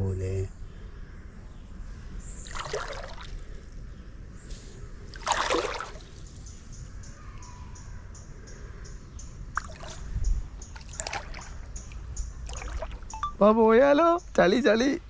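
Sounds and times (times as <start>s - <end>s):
water splashing in stream: 2.3s - 3.9s, 5.1s - 6.8s, 9.6s - 13.3s.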